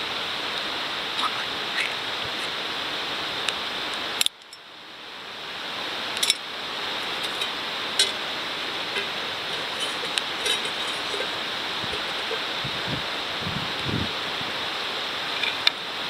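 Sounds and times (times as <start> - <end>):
steady rushing background noise: 5.6 - 15.5
wood fire crackling: 8.6 - 14.6.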